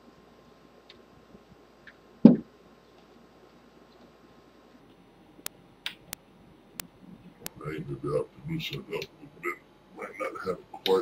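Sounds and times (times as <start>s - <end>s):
dull knock: 2.2s - 2.5s.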